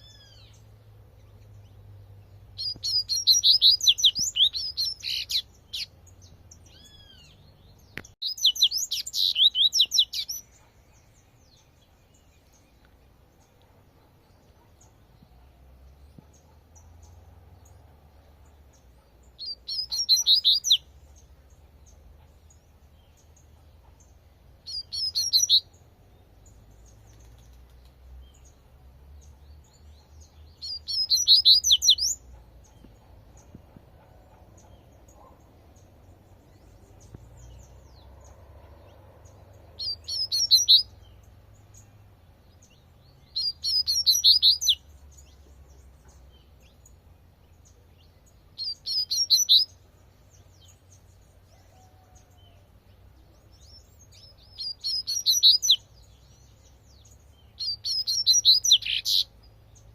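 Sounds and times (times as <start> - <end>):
faint low rumble: 32.2 - 43.7.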